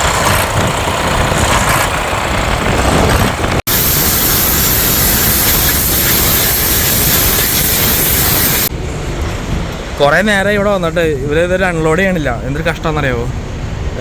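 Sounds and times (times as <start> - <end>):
truck engine running: 0.0 - 9.5
loud steady hiss: 3.7 - 8.7.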